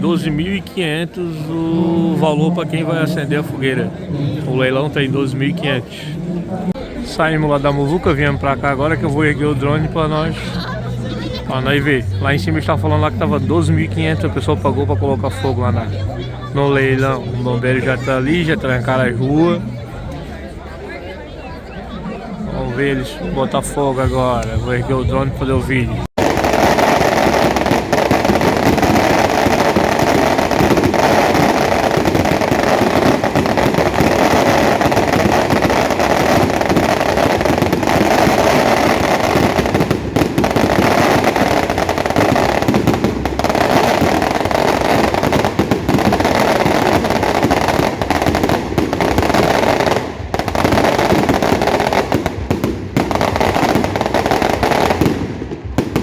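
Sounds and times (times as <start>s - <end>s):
fireworks crackling and popping: 26.1s - 56.0s.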